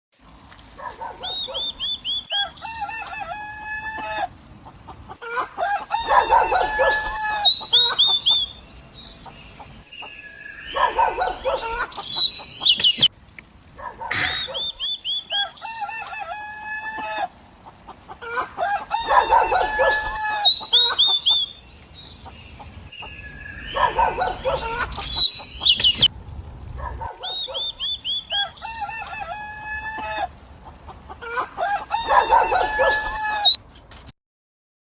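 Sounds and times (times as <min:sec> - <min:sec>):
rooster crowing: 0:02.3 - 0:04.3, 0:05.2 - 0:08.1, 0:15.3 - 0:17.3, 0:18.2 - 0:20.6, 0:28.3 - 0:30.4, 0:31.2 - 0:33.6
chickens clucking: 0:02.4 - 0:13.1, 0:14.0 - 0:21.5, 0:22.1 - 0:26.1, 0:28.3 - 0:33.4.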